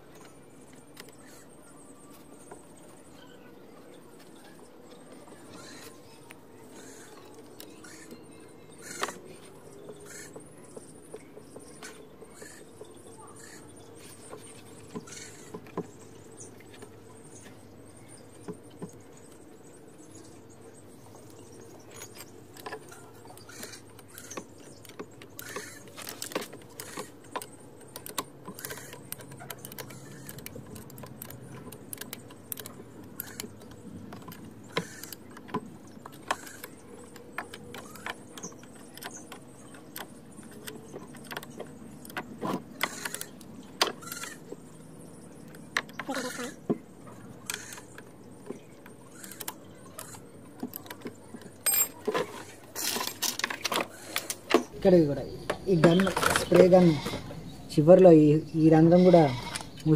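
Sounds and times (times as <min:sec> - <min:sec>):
steady low hum: 0:00.0 - 0:59.9
metallic clicks and clinks of tools: 0:51.6 - 0:54.5.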